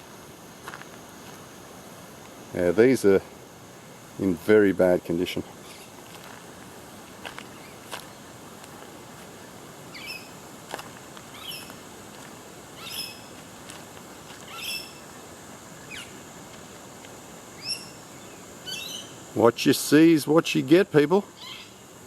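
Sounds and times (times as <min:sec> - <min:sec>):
birds chirping: 0:05.6 - 0:06.0, 0:07.4 - 0:08.3, 0:09.9 - 0:10.4, 0:11.3 - 0:11.8, 0:12.7 - 0:13.4, 0:14.2 - 0:16.2, 0:17.6 - 0:19.2.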